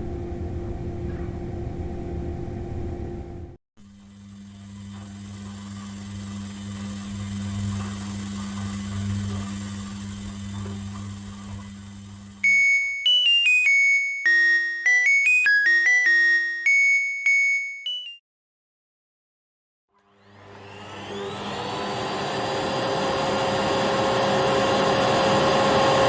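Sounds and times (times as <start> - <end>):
low electrical hum: 0.0 - 5.6
electronic chime tune: 12.4 - 18.2.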